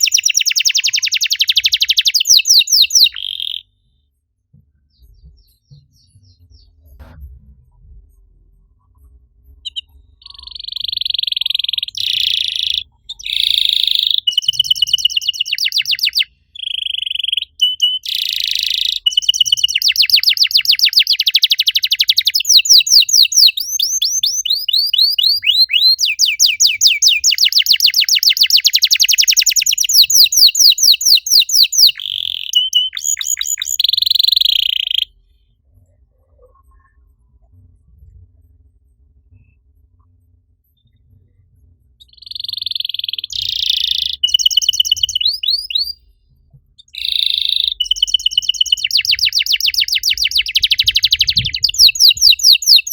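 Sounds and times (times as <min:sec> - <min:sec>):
canary singing trills: 0:00.0 - 0:03.7, 0:09.6 - 0:35.2, 0:42.0 - 0:46.0, 0:46.8 - 0:52.9.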